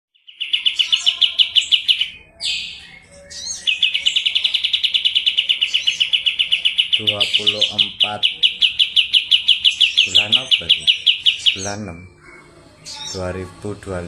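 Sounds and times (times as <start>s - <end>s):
songbird rattling chirps: 3.5s - 11.8s.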